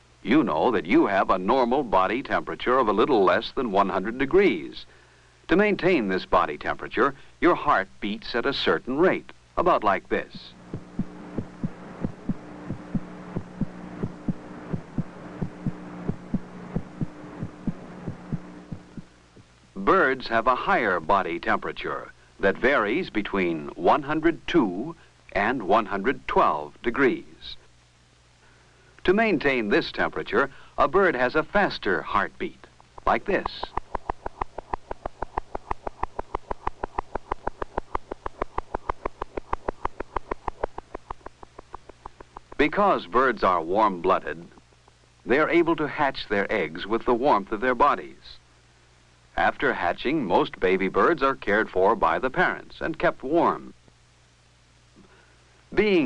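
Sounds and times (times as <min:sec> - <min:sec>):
steady low hum: 0:00.0 - 0:56.0
heartbeat double thumps: 0:10.5 - 0:19.5, 0:33.0 - 0:42.6.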